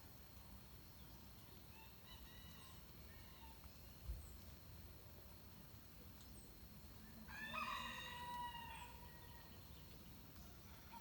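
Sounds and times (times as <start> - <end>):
rooster crowing: 7.3 - 9.1.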